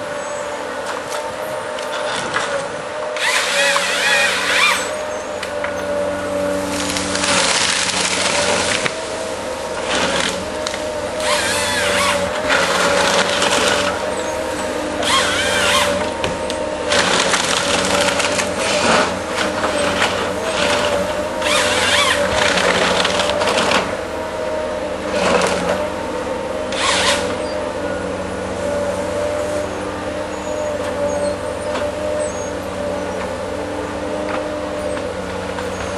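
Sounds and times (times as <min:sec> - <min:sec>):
harvester engine running: 0:00.0 - 0:35.9
wood cutting and crackling: 0:00.8 - 0:24.1, 0:25.0 - 0:25.9, 0:26.7 - 0:27.7.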